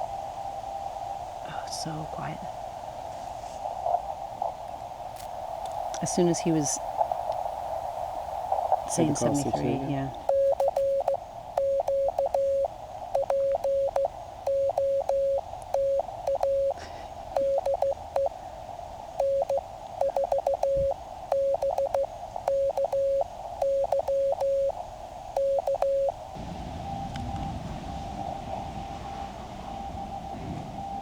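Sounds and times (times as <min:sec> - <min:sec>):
receiver hiss: 0:00.0 - 0:31.0
morse code tone beeping: 0:10.2 - 0:18.3, 0:19.2 - 0:24.8, 0:25.4 - 0:26.2.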